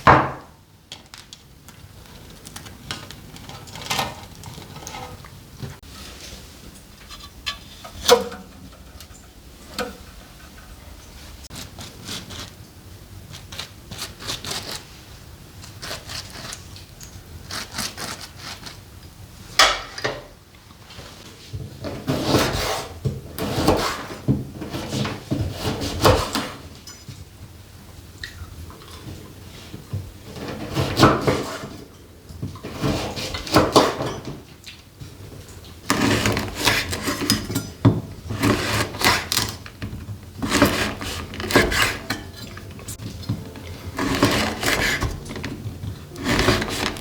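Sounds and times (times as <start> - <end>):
objects knocking and clattering: 39.2 - 47.0
objects scraping: 40.3 - 47.0.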